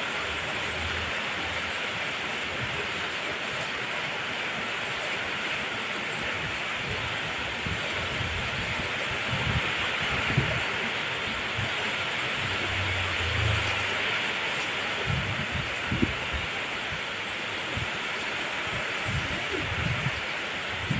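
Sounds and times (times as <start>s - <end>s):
heavy rain pouring: 0.0s - 20.9s
wind buffeting microphone: 6.1s - 13.8s, 14.9s - 18.0s, 18.6s - 20.9s
low rumble: 12.4s - 14.0s.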